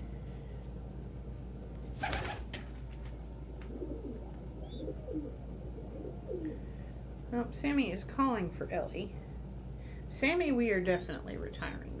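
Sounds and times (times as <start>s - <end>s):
steady low hum: 0.0s - 12.0s
pigeon cooing: 3.7s - 6.7s.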